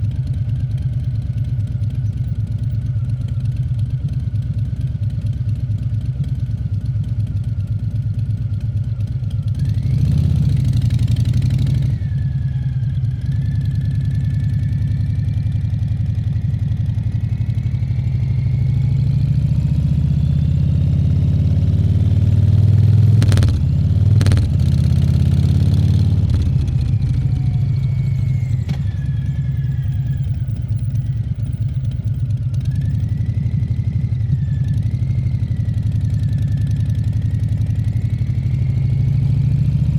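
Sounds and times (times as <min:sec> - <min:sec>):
motorcycle engine running: 0:00.0 - 0:39.9
sharp clicks: 0:23.2 - 0:24.8.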